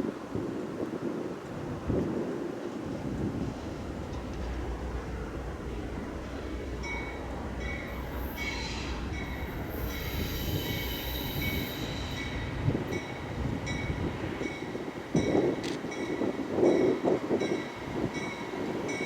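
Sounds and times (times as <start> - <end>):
train rumbling past: 1.3 - 19.0
train wheels squealing: 6.8 - 14.6.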